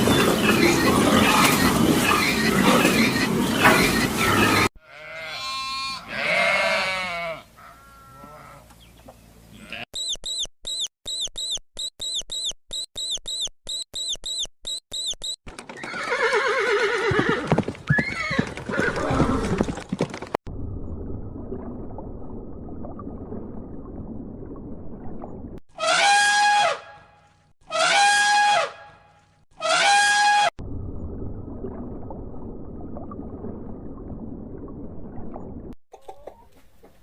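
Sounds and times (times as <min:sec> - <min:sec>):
short high chirps: 0:10.0 - 0:15.4.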